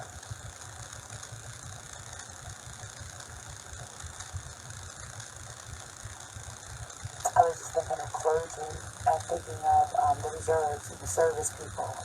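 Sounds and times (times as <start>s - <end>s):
constant hiss: 5.8s - 12.0s.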